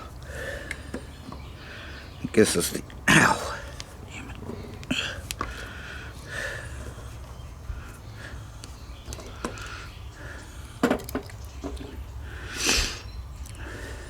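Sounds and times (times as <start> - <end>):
steady low hum: 0.0 - 14.0
short hiss: 12.6 - 13.1.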